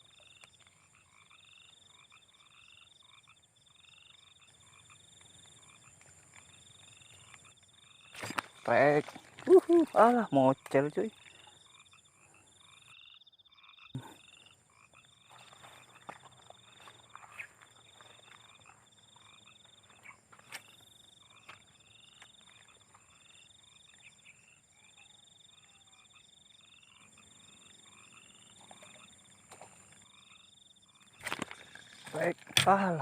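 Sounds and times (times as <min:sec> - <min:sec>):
frog chorus: 0:00.0 - 0:33.0.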